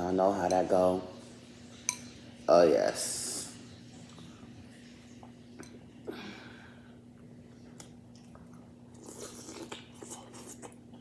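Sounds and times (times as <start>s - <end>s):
person chewing wetly: 7.2s - 11.0s.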